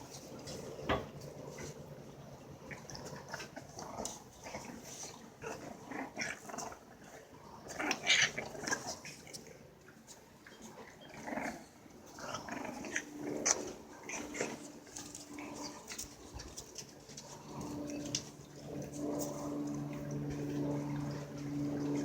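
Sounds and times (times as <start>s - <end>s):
puppies growling and grunting: 0.0s - 9.7s, 10.6s - 22.0s.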